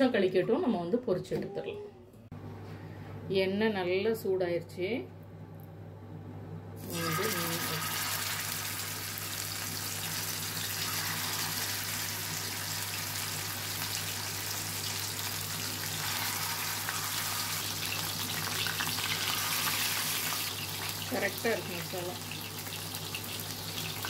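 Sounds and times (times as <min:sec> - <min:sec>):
fish frying in hot oil: 0:06.8 - 0:24.0.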